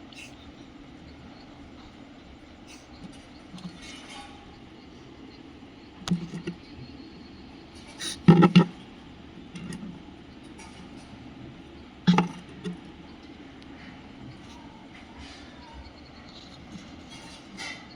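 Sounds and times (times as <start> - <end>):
sharp knocks and rattles: 6.0 - 6.9, 7.7 - 13.4.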